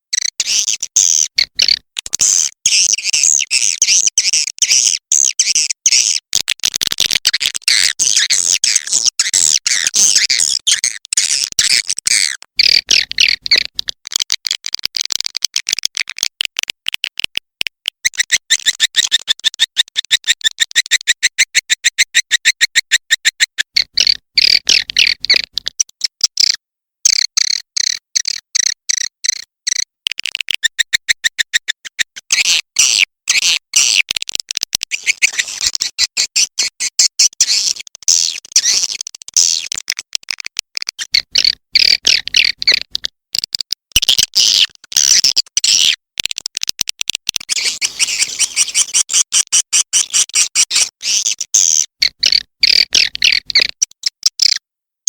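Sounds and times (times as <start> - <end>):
high twittering bird chirps: 0.2 - 6.2, 11.2 - 13.9, 23.8 - 25.6, 41.2 - 43.0, 51.0 - 53.7.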